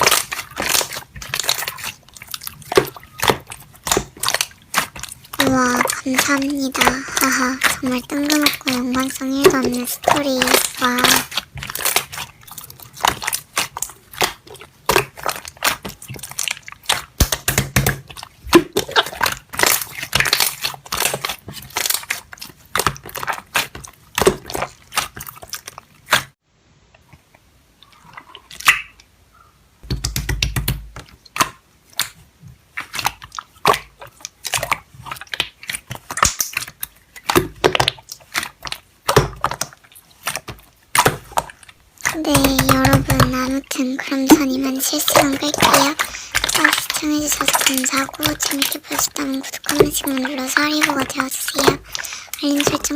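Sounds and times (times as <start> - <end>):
slime sticky clicks and crackles: 32.8 - 43.3.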